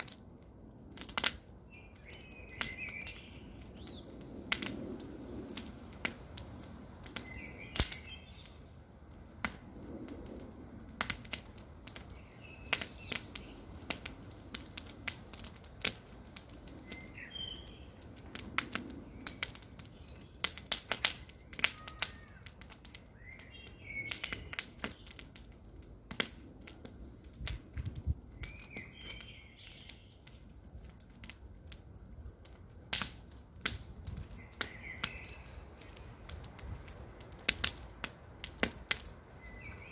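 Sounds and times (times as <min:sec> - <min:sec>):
campfire crackling and popping: 0:00.0 - 0:39.9
bird chirping: 0:16.8 - 0:18.0, 0:34.4 - 0:36.0.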